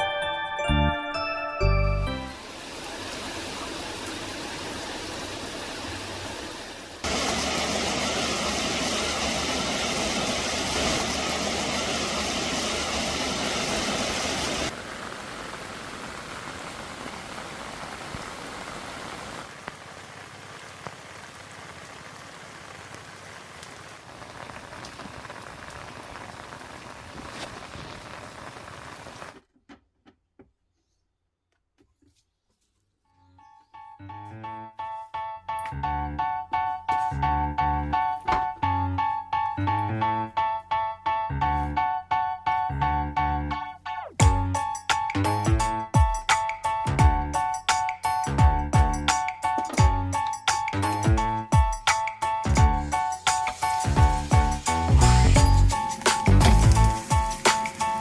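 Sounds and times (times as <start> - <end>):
heavy rain falling: 2.2 - 29.4, 50.8 - 58.0.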